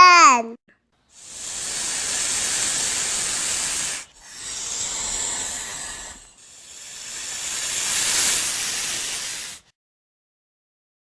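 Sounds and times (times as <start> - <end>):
snake hissing: 1.1 - 9.7.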